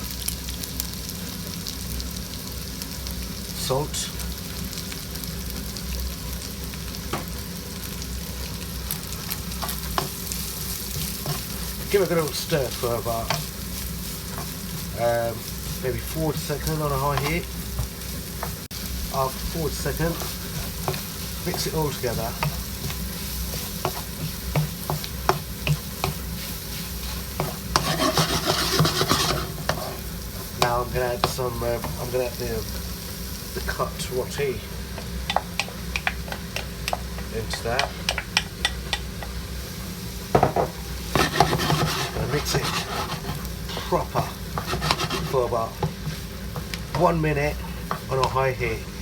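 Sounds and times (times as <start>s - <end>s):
vegetables sizzling in a wok: 0.0s - 49.0s
utensil knocking against wok: 27.4s - 29.9s, 35.0s - 39.4s, 44.2s - 46.7s.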